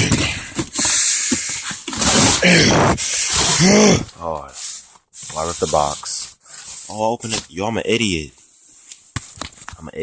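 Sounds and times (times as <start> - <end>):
cardboard tearing: 1.8 - 3.9
person grunting: 2.3 - 4.2.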